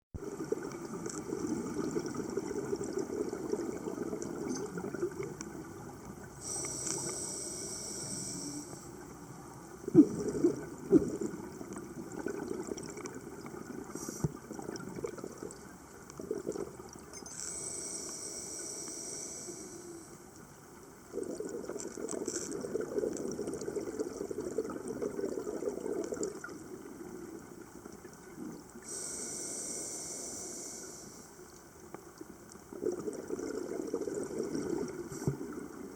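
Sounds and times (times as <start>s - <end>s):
water trickling and bubbling: 0.2s - 6.7s, 9.0s - 17.4s, 20.7s - 29.1s, 32.2s - 35.9s.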